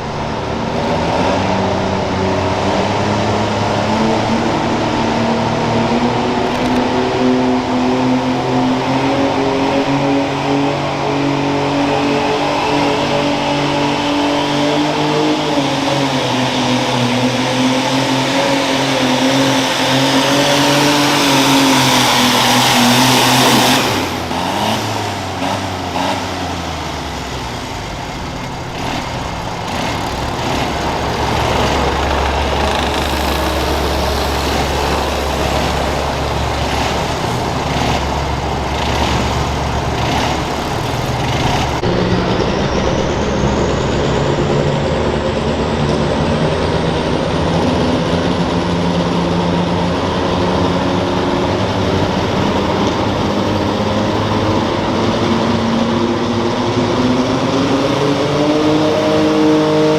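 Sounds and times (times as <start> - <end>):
tractor engines running under load: 0.0 - 59.9
high whine: 21.1 - 53.6
deep steady rumble: 26.4 - 53.9.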